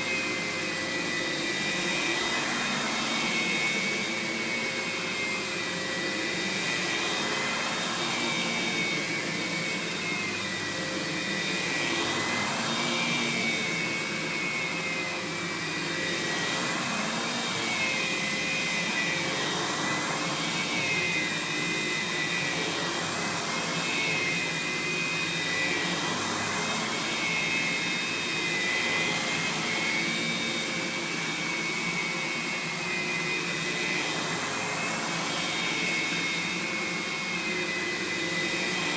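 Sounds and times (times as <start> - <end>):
vacuum cleaner whining: 0.0 - 38.9.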